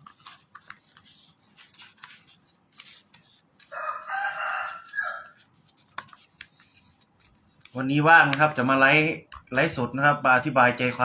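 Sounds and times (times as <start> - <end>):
rooster crowing: 3.7 - 5.4.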